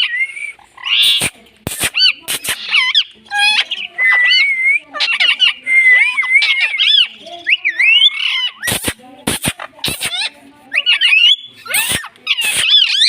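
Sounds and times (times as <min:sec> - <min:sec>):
parrot whistled chirps and squawks: 0:00.0 - 0:09.0, 0:09.6 - 0:13.0
sharp clicks: 0:01.0 - 0:02.7, 0:08.6 - 0:10.2.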